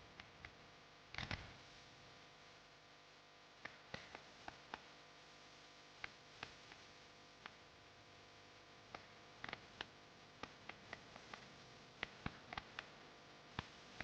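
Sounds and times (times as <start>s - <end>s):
faint sharp clicks: 0.2s - 1.5s, 3.6s - 4.9s, 6.0s - 7.6s, 8.9s - 14.0s.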